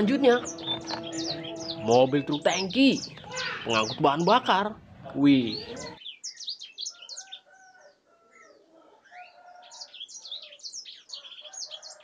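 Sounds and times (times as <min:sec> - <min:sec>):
low whistled bird notes: 0:00.0 - 0:04.0
small birds chirping: 0:00.0 - 0:07.8, 0:08.4 - 0:12.0.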